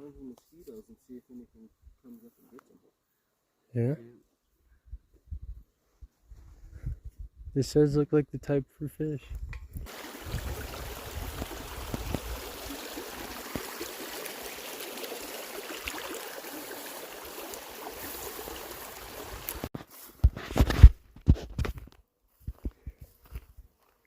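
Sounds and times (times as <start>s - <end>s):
water trickling and gurgling: 9.8s - 19.7s.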